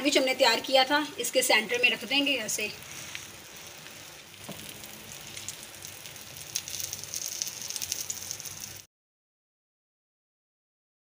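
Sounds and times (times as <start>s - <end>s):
batter sizzling in a pan: 1.8s - 8.9s.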